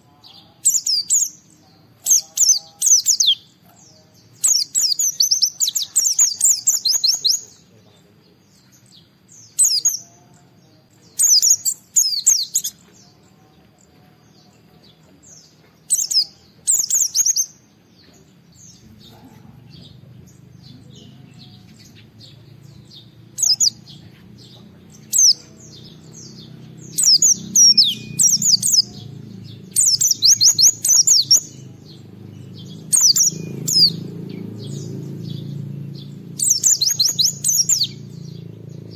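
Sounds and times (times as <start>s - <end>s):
bird high twittering song: 0.0s - 38.9s.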